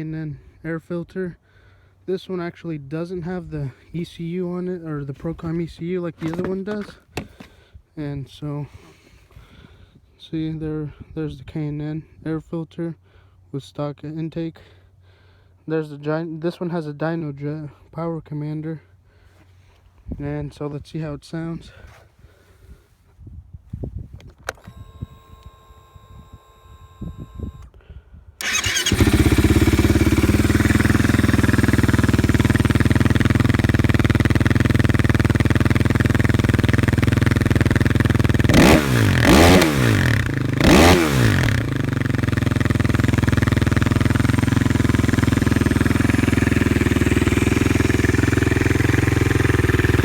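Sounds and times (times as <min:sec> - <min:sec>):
quad engine starting and idling: 0:03.4 - 0:07.6, 0:24.5 - 0:27.7, 0:28.4 - 0:50.0
quad engine revving: 0:06.2 - 0:07.4, 0:28.4 - 0:50.0.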